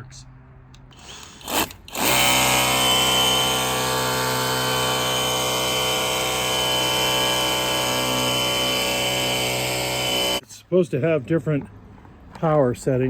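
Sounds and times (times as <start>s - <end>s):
pressure washer running: 1.5s - 10.4s.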